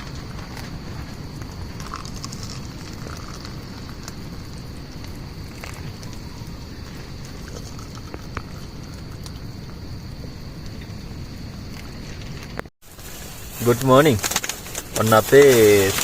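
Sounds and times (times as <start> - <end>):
rain pattering on a tent: 0.0 - 6.2, 12.0 - 16.0.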